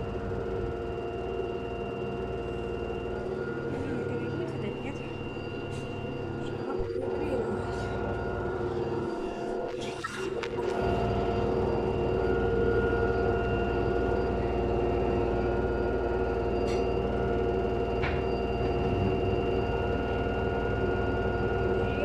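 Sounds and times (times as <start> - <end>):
washing machine spinning whine: 0.0 - 22.0.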